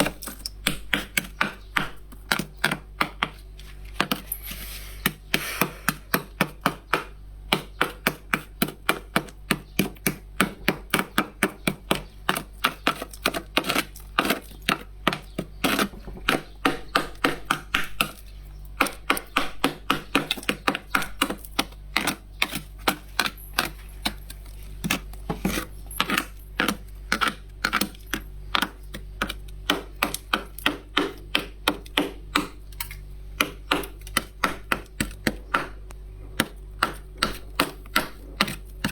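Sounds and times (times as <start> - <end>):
freezer frost being scraped: 2.3 - 6.2, 10.9 - 16.5, 20.4 - 31.1, 36.4 - 38.9.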